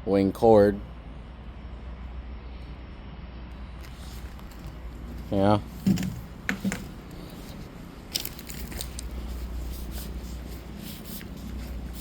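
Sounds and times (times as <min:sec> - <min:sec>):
steady low hum: 0:00.0 - 0:12.0
handling clicks and rustles: 0:03.8 - 0:12.0.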